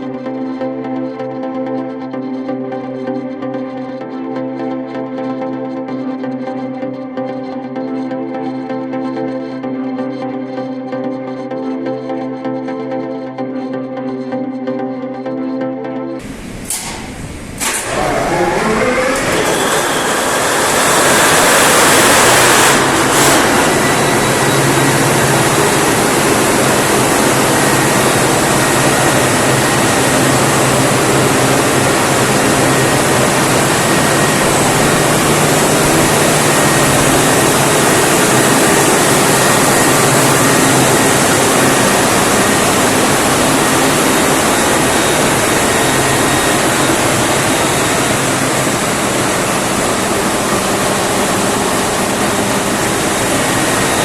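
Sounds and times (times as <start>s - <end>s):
diesel generator running loudly: 16.2s - 54.0s.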